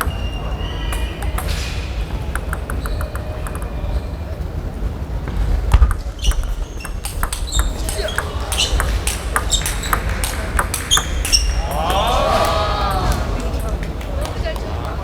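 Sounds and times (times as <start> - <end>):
table tennis ball hits: 0.0 - 3.9, 5.7 - 13.8
low hum of large hall: 0.0 - 15.0.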